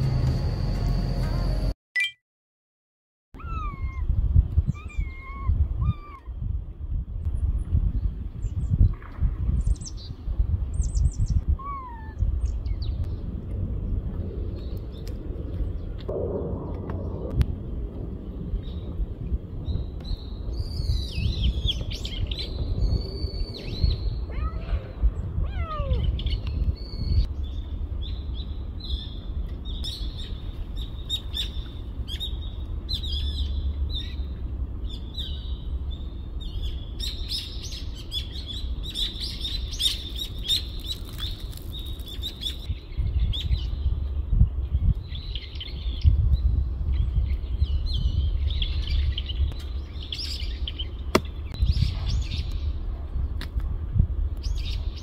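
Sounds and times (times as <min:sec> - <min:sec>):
low rumble: 0:00.0 - 0:01.8, 0:12.2 - 0:29.8
small birds chirping: 0:25.9 - 0:52.8.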